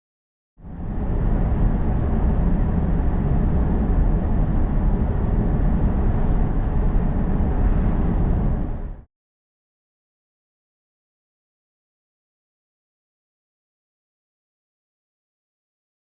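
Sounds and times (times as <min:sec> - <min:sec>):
road and tyre rumble: 0:00.6 - 0:09.0
low engine drone: 0:00.6 - 0:09.1.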